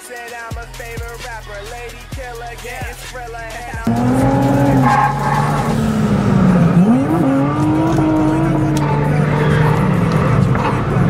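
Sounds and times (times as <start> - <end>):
car engine revving: 3.8 - 11.0
car engine steady: 3.8 - 11.0.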